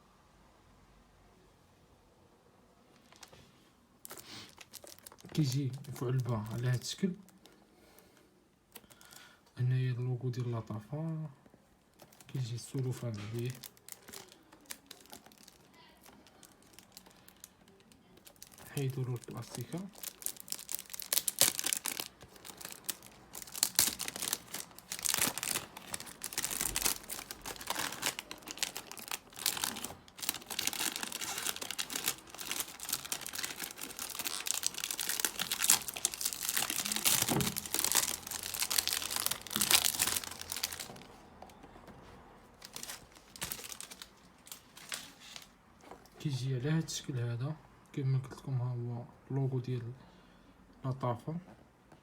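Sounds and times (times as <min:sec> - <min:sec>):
cellophane crinkling: 0:02.9 - 0:09.4, 0:10.3 - 0:41.8, 0:42.5 - 0:46.2.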